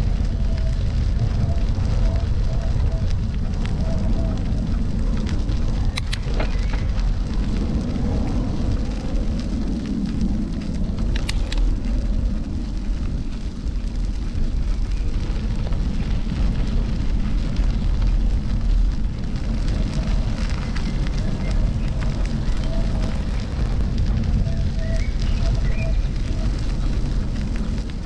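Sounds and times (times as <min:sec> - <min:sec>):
bicycle tyres rolling: 0:00.0 - 0:28.0
wind on microphone: 0:00.0 - 0:28.0
sharp clicks: 0:05.9 - 0:06.9, 0:11.1 - 0:11.7.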